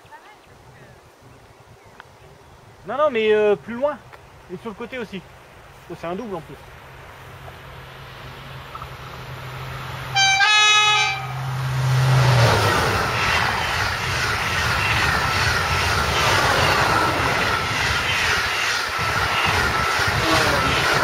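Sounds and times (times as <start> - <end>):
high-speed train passing: 3.8 - 21.0
low train hum: 3.9 - 21.0
train horn: 10.1 - 11.5.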